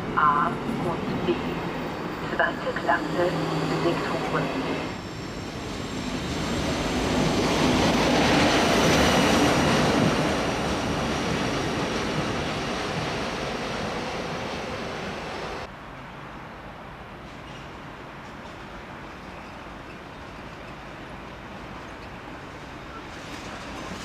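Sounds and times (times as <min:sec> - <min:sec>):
train wheel and rail noise: 0:00.0 - 0:24.0.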